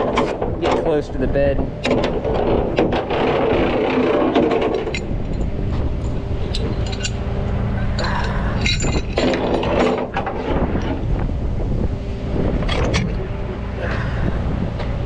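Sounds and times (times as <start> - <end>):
tow truck engine running: 0.0 - 15.0
towing gear clicks and scrapes: 0.0 - 15.0.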